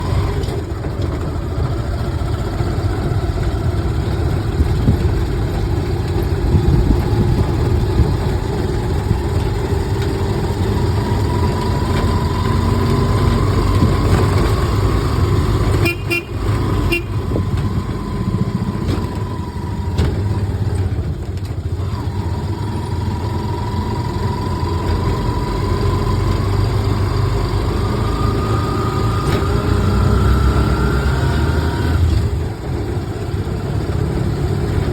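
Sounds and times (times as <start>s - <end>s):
wind buffeting microphone: 4.4s - 10.0s.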